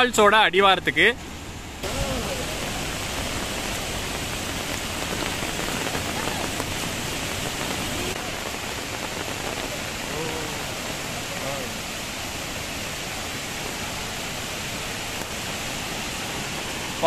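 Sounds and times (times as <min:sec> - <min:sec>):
waterfall torrent pouring: 0:00.0 - 0:17.0.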